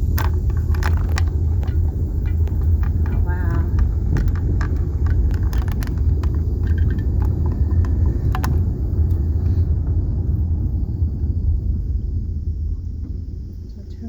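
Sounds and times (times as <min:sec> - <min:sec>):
light clicks and ticks: 0:00.0 - 0:09.6
car road rumble inside cabin: 0:00.0 - 0:14.0.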